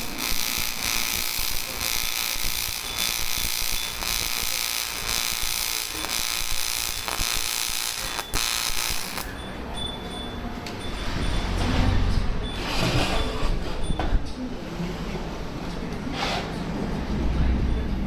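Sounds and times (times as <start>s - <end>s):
welding arc hissing: 0.0s - 9.4s.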